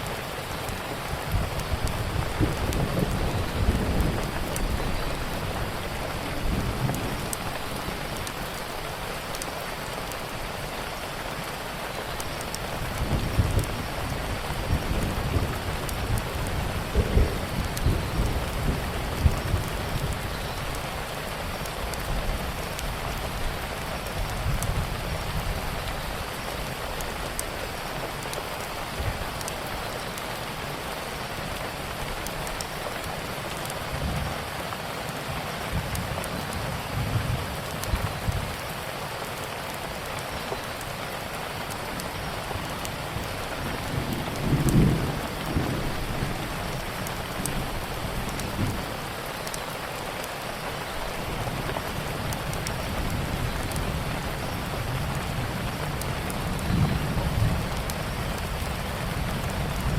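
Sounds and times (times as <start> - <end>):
steady rain: 0.0 - 59.9
wood fire crackling: 0.0 - 59.9
thunder rumbling: 1.1 - 8.8, 12.7 - 21.0, 42.6 - 49.3.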